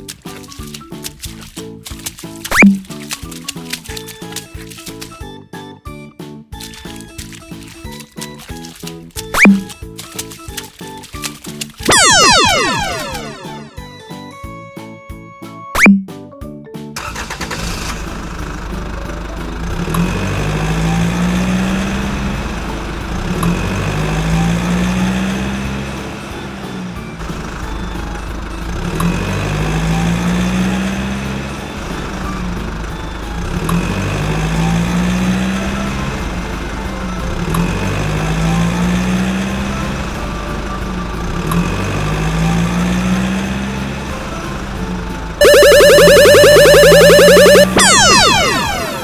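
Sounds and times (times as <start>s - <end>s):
vehicle engine drone: 17.5s - 49.0s.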